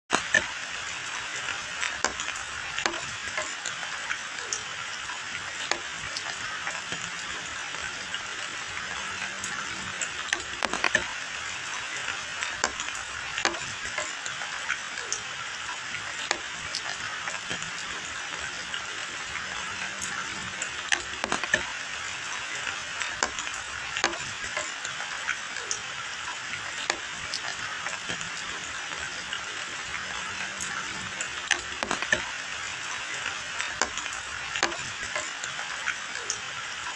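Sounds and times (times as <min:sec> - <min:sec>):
rain on leaves and pavement: 0:00.1 - 0:36.9
single raindrops splatting: 0:16.0 - 0:36.9.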